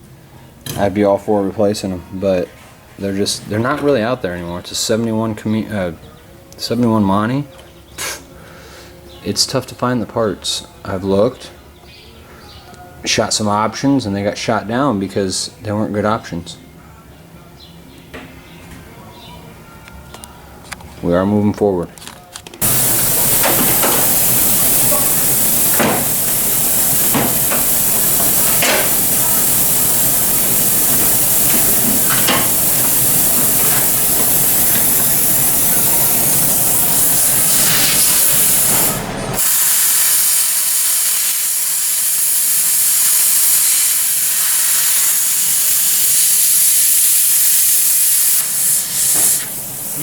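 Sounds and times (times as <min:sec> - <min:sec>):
plasma cutter hissing: 0:22.6 - 0:50.0.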